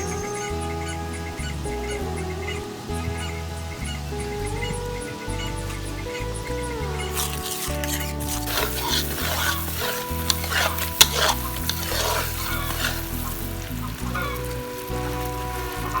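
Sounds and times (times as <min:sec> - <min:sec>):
background music: 0:00.0 - 0:16.0
utensil scraping pan: 0:07.1 - 0:14.5
food sizzling in a pan: 0:07.1 - 0:16.0.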